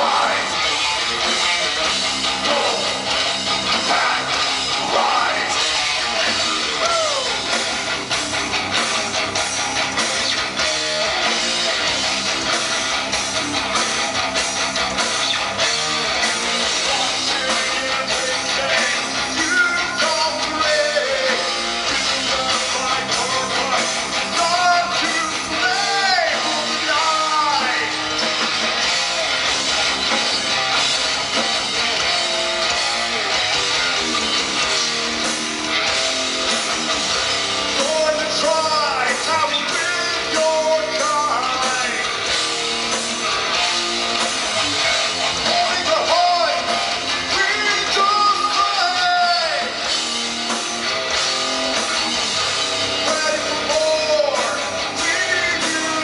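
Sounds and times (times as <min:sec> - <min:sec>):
electric guitars: 0:00.0 - 0:56.0
live rock band: 0:00.0 - 0:56.0
person singing: 0:16.8 - 0:28.0, 0:53.1 - 0:56.0.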